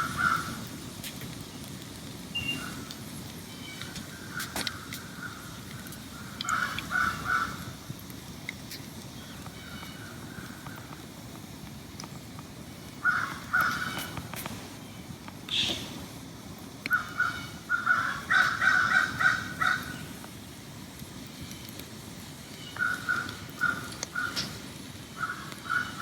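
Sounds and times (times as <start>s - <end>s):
bird calling: 2.4s - 2.8s, 15.5s - 16.0s.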